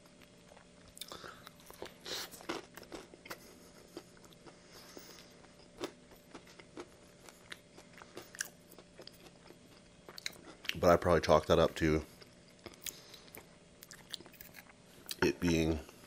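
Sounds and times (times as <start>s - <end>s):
chewing with crunches: 0.0s - 10.9s, 12.1s - 16.0s
biting crunchy sandwich: 0.2s - 10.8s.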